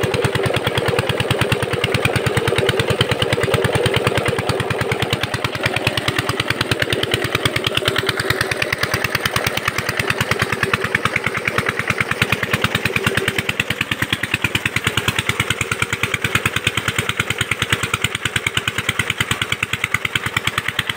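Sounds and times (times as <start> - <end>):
diesel engine chugging: 0.0 - 20.9.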